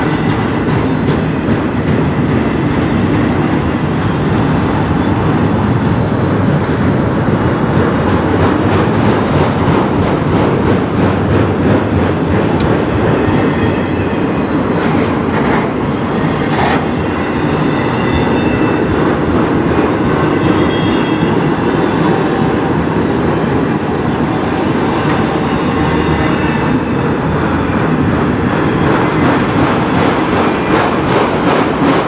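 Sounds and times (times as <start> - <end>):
steel wheels on rail: 0.0 - 32.0
high-pitched wheel squeal: 24.8 - 27.1.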